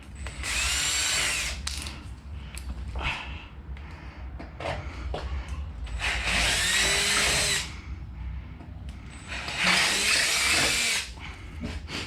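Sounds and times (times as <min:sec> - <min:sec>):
power drill boring into metal: 0:06.0 - 0:07.7, 0:09.2 - 0:11.1.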